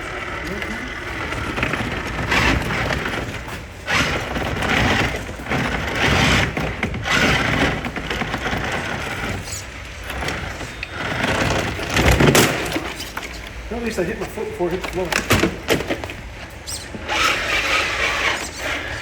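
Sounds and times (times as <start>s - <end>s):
tires scrabbling: 0.0s - 19.0s
rc truck motor bursts: 0.1s - 12.7s, 17.0s - 19.0s.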